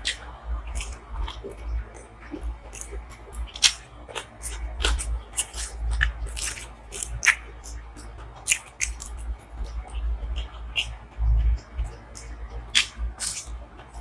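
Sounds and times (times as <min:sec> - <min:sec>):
chewing and biting mouth sounds: 0:00.0 - 0:14.0.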